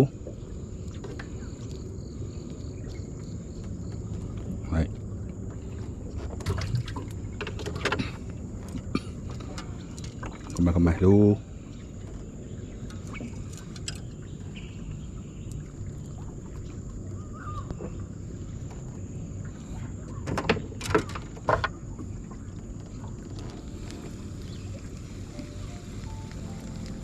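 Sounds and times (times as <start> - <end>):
steady low rumble: 0.0 - 7.4, 21.8 - 27.0.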